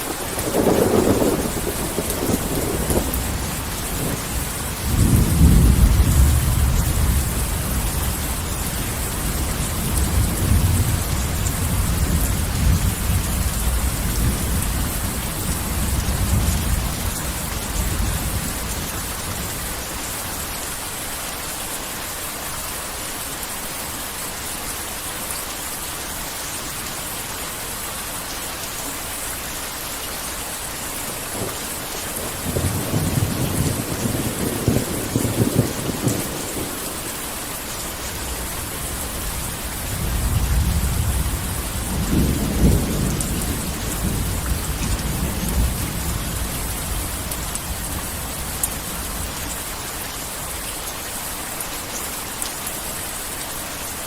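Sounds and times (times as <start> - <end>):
thunder rumbling: 0.0 - 19.6, 31.1 - 37.3, 37.9 - 49.4
heavy rain falling: 0.0 - 54.0.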